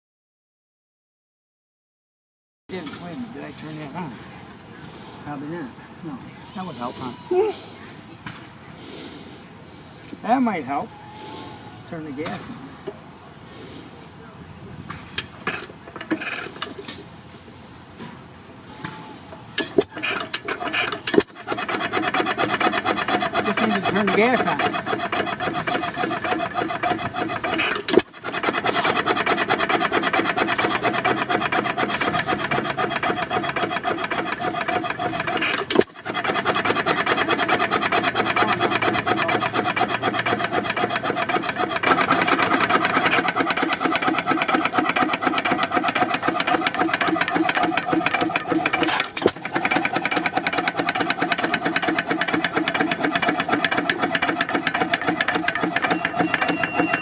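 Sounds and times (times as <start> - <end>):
engine starter cranking: 15.2 - 16.9, 19.5 - 57.0.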